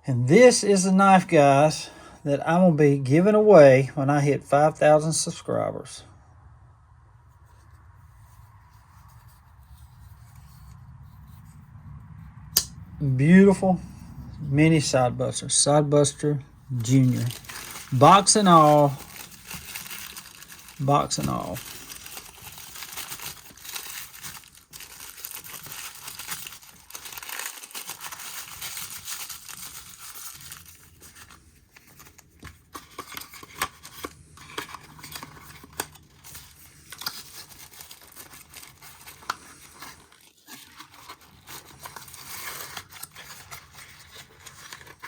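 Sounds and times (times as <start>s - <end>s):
packaging crinkling and rustling: 16.7s - 45.0s.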